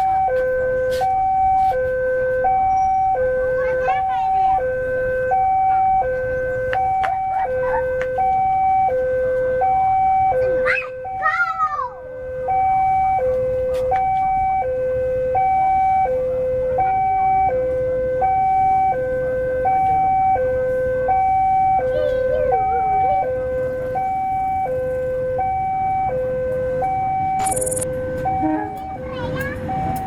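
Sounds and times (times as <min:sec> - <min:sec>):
level crossing two-tone alarm: 0:27.4 - 0:27.8.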